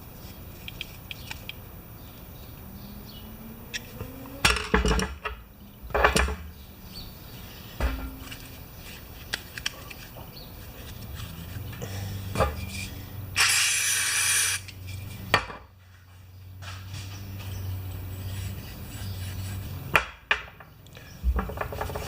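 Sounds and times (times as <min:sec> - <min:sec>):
tools clinking and knocking: 0:03.8 - 0:06.5, 0:07.8 - 0:08.6, 0:11.2 - 0:13.0, 0:21.3 - 0:22.0.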